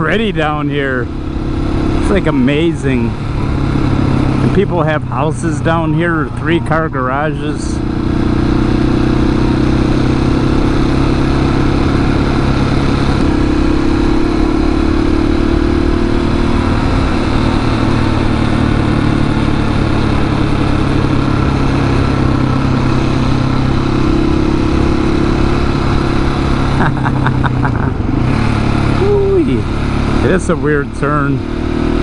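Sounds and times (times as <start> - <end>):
motorcycle engine running: 0.0 - 32.0
riding noise: 23.8 - 31.4.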